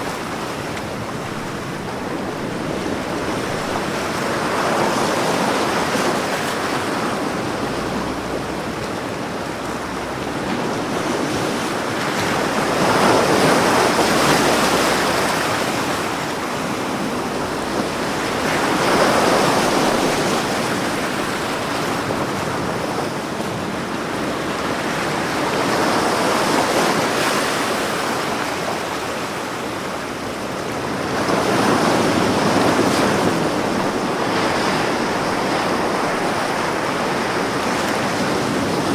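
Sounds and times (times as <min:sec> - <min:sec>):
ocean waves breaking on beach: 0:00.0 - 0:38.9.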